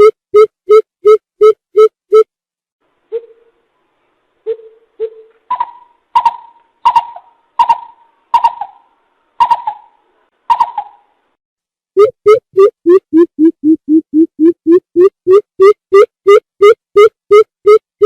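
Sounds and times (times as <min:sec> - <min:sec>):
coucal calling: 0:04.5 - 0:11.2.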